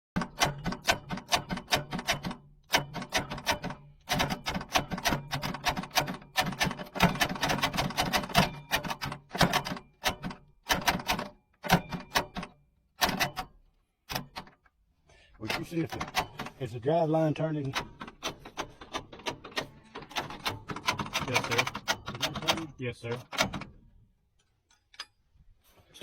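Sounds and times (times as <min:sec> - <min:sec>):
starter motor rapid clicking: 0:00.2 - 0:13.4, 0:17.7 - 0:22.7.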